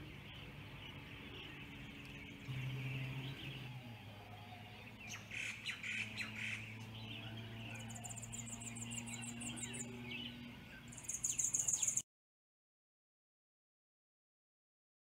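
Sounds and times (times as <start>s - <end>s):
bird trill: 0.0s - 12.0s
birds chirping: 0.0s - 12.0s
low steady hum: 0.0s - 12.0s.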